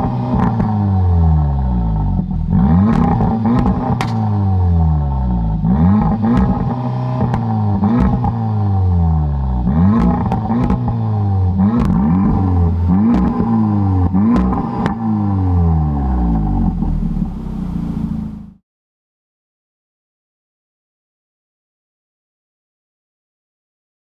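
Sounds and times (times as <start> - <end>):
car engine idling: 0.0 - 18.6
car engine revving: 0.0 - 18.6
exhaust cracks: 0.0 - 18.6.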